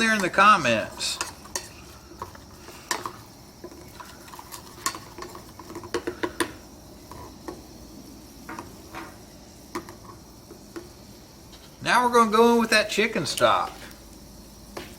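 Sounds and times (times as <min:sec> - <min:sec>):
utensil scraping a pan: 0:00.0 - 0:07.6
light sizzle: 0:00.0 - 0:14.9.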